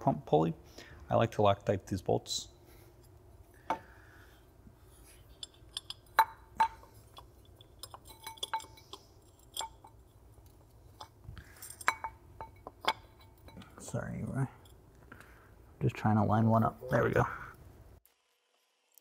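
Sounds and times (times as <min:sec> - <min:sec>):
metal pulley and bolts clinking: 0:05.1 - 0:14.8.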